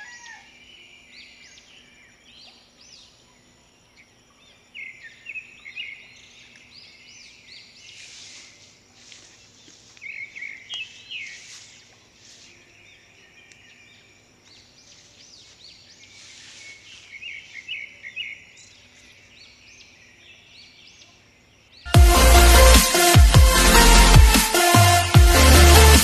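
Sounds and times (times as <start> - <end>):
faint steady hiss: 0.4 - 21.8.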